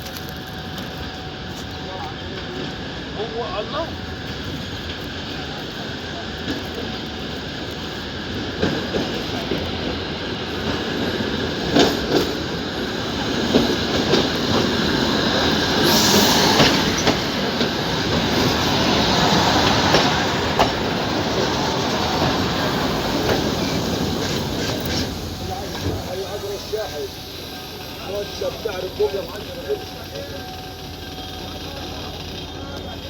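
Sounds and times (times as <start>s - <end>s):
train rumble on rails: 0.0s - 33.0s
high hissing squeal: 12.3s - 32.6s.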